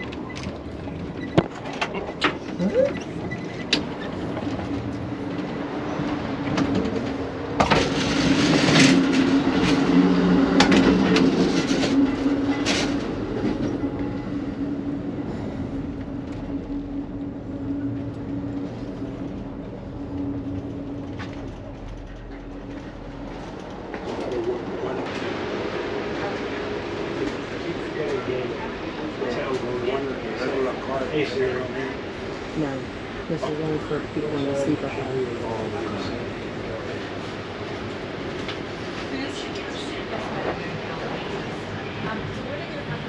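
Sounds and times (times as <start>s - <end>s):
moving train rumble: 0.0s - 43.0s.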